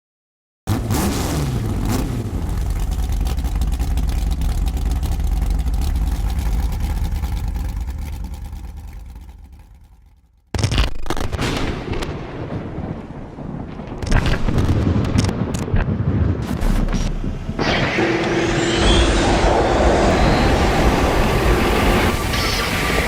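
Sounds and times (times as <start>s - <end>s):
car engine revving and rumbling: 0.7s - 10.5s, 16.4s - 23.0s.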